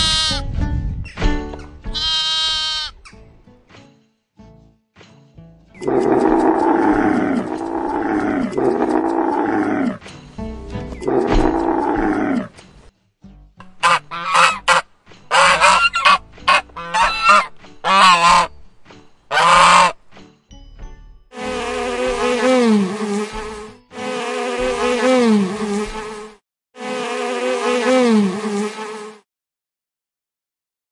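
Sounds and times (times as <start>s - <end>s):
camel calling: 0.0s - 0.4s, 2.0s - 3.0s, 5.8s - 10.0s
geese honking: 2.0s - 2.9s, 13.8s - 18.5s, 19.3s - 20.0s
bee buzzing: 21.4s - 29.2s.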